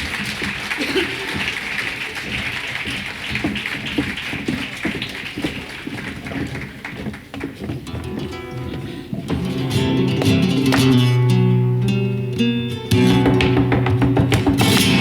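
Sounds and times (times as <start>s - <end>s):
audience applause: 0.0s - 7.7s
steady sharp strikes: 12.4s - 15.0s.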